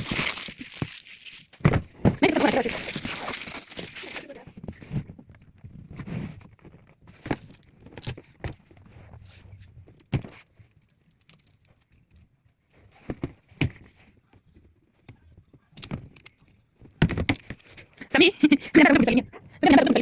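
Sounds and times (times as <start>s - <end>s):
objects knocking and clicking: 15.0s - 17.9s.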